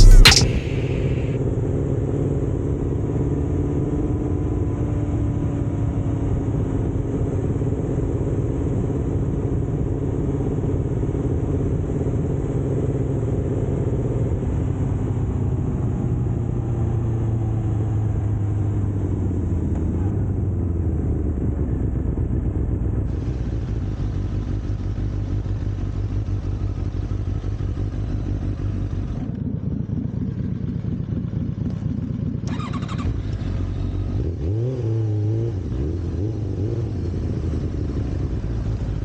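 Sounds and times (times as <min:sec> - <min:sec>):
motorcycle engine droning: 0:31.3 - 0:39.0.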